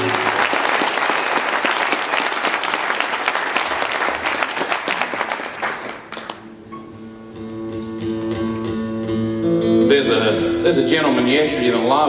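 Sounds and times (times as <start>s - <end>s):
audience applause: 0.0s - 6.5s.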